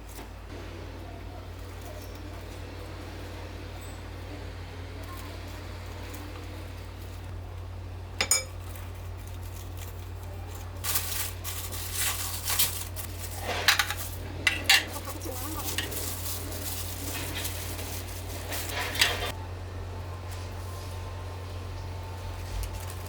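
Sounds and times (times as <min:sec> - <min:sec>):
low steady hum: 0:00.0 - 0:23.0
dishes and utensils clinking: 0:08.2 - 0:08.8, 0:13.4 - 0:16.2, 0:18.5 - 0:19.4.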